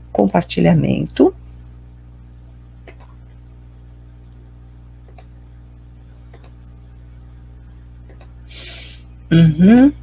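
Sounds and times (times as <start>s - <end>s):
low electrical hum: 0.0s - 10.0s
computer mouse clicks: 5.1s - 5.3s, 6.3s - 6.6s.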